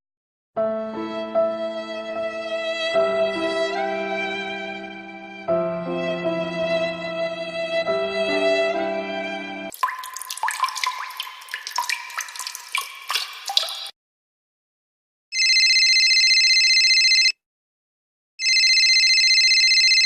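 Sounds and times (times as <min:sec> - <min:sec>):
water drops plinking: 0:09.7 - 0:13.9.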